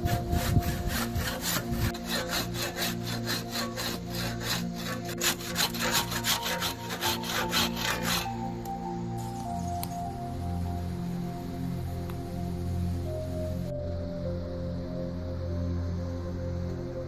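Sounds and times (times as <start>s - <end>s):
hand saw cutting wood: 0.0s - 8.5s.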